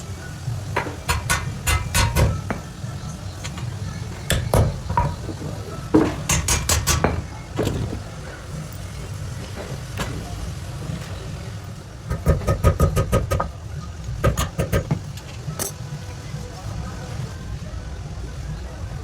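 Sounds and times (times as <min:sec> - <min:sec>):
hammer striking steel blade: 0:00.8 - 0:02.6, 0:06.0 - 0:07.2.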